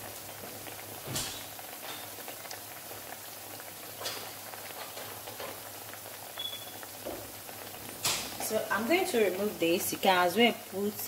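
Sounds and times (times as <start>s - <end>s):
plantain frying in hot oil: 0.0s - 11.0s.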